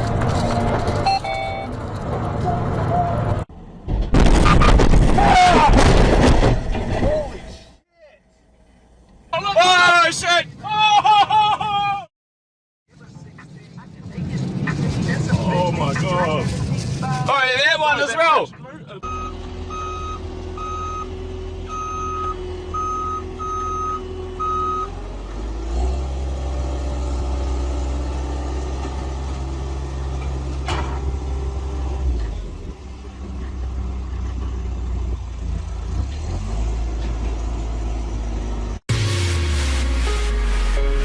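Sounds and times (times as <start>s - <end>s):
reversing alarm beeps: 1.0s - 1.7s, 19.0s - 21.1s, 21.7s - 24.9s
heavy engine rumble: 18.5s - 41.0s.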